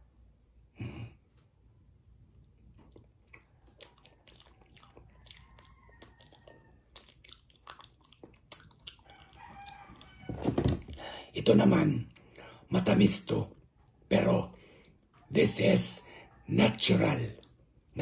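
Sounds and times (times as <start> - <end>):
person chewing: 2.1 - 11.0.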